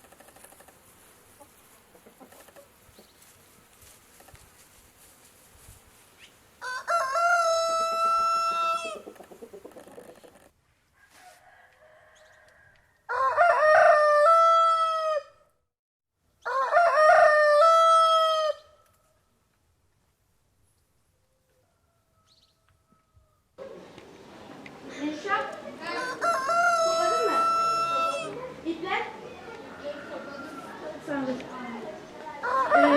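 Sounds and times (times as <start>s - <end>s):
rooster crowing: 6.6s - 9.0s, 11.0s - 15.4s, 16.4s - 18.7s, 25.8s - 28.4s, 29.4s - 31.2s, 32.4s - 32.9s.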